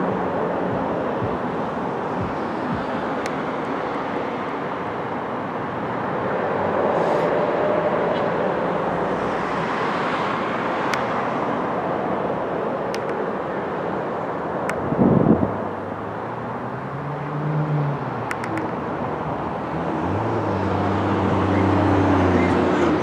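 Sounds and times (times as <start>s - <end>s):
broad hiss and rumble: 0.0s - 23.0s
faint clicks: 18.3s - 18.8s.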